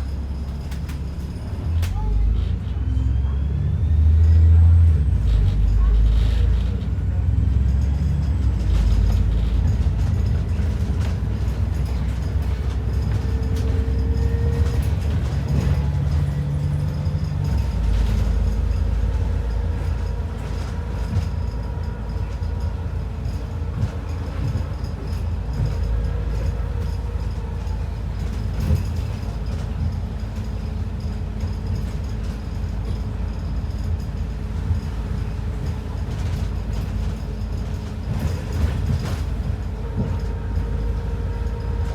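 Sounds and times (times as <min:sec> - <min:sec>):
bus engine and road rumble: 0:00.0 - 0:41.9
body rattles and clicks: 0:07.8 - 0:41.9.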